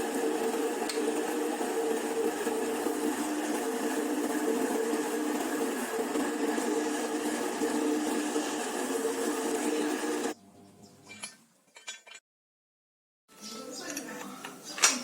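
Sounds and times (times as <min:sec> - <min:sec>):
power tool motor whining: 0:00.0 - 0:10.4.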